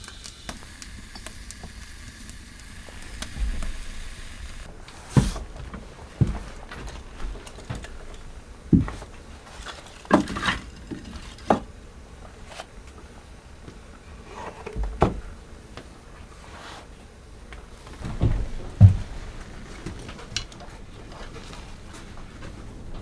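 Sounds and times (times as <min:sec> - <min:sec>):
objects knocking and clattering: 0:02.9 - 0:11.7.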